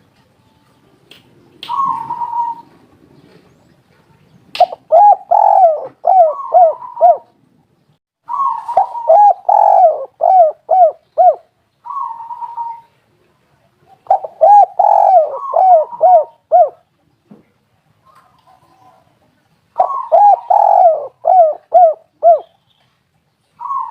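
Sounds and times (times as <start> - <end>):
dove cooing: 1.7 - 3.5, 4.6 - 7.4, 8.3 - 13.0, 13.9 - 16.9, 19.8 - 22.6, 23.6 - 23.9.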